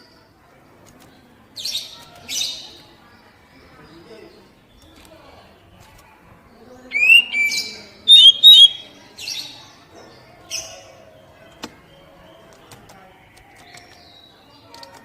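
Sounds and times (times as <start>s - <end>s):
bird whistling calls: 6.9s - 9.0s.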